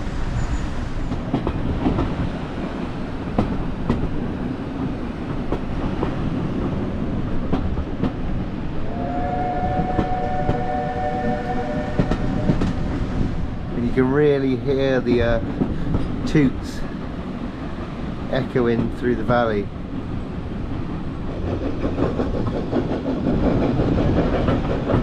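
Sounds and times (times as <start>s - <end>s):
train rumbling: 0.0s - 25.0s
steam whistle: 8.8s - 13.2s
wheels clicking over rail joints: 13.8s - 19.3s, 20.7s - 25.0s.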